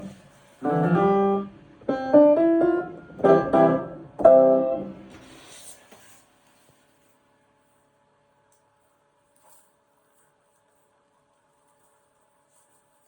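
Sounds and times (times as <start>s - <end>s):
piano chords: 0.0s - 5.2s.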